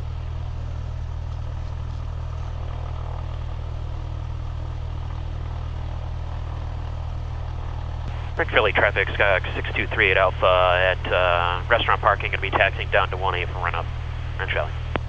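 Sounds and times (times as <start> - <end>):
aircraft engine idling: 0.0 - 15.0.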